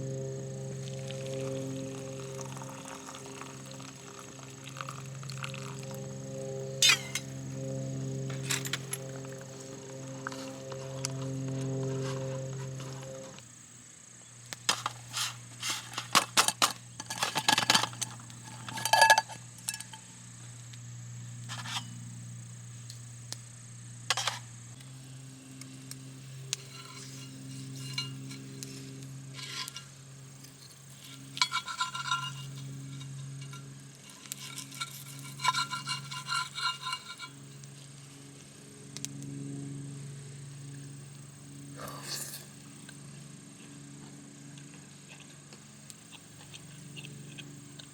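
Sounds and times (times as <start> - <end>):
cookware clinking and scraping: 6.8 - 7.3, 14.7 - 20.0, 21.5 - 22.0, 24.1 - 24.4, 26.6 - 28.6, 29.4 - 29.9, 31.0 - 37.4.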